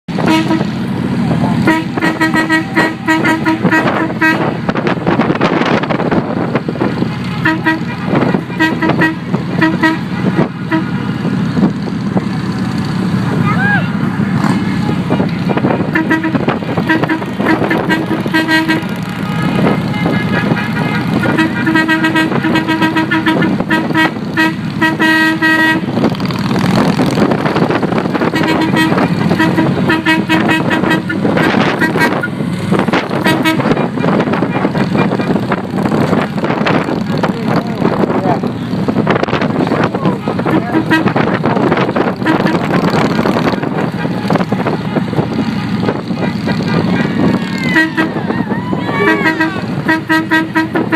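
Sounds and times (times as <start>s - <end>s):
motorcycle engines rumbling: 0.1s - 50.9s
vehicle horn short toots: 0.2s - 0.8s, 1.6s - 4.6s, 7.3s - 11.2s, 15.5s - 25.9s, 28.3s - 32.3s, 33.2s - 35.4s, 40.1s - 41.4s, 42.2s - 42.8s, 43.9s - 48.3s, 48.9s - 50.9s
vehicle horn short beeps: 7.3s - 11.0s.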